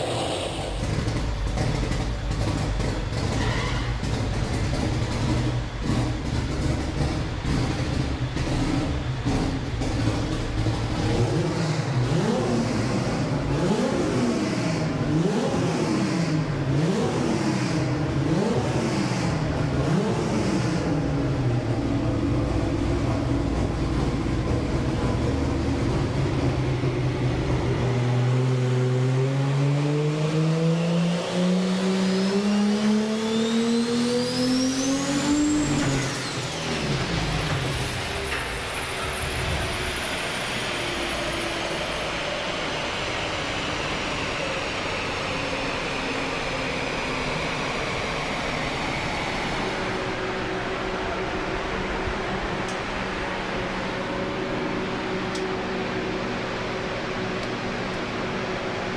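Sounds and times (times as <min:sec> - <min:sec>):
high whine: 0:00.0 - 0:01.3
car engine revving: 0:00.0 - 0:03.4, 0:04.0 - 0:38.1.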